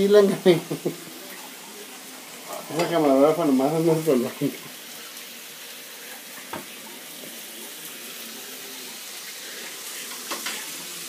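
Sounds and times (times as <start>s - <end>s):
meat and onions sizzling: 0.0s - 11.0s.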